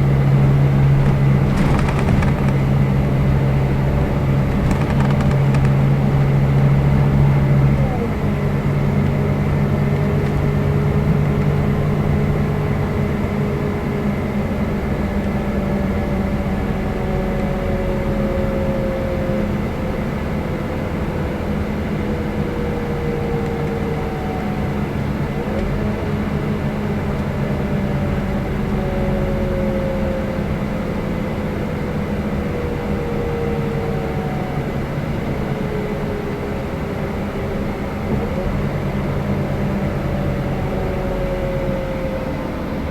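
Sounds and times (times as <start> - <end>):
coach engine running: 0.0 - 6.9.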